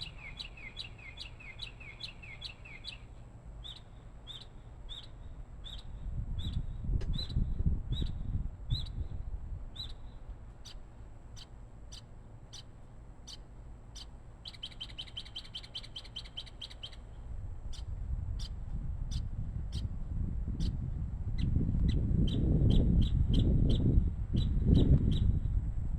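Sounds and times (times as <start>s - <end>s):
bird chirping: 0.0s - 9.0s, 9.8s - 10.8s, 11.4s - 12.7s, 13.3s - 17.1s.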